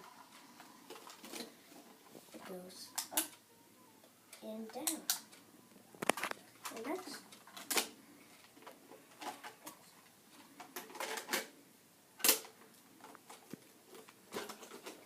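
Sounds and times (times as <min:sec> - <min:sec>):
plastic toys clicking and knocking: 0:00.0 - 0:01.6, 0:02.4 - 0:03.4, 0:04.3 - 0:05.4, 0:06.0 - 0:09.8, 0:10.4 - 0:11.6, 0:12.2 - 0:15.0.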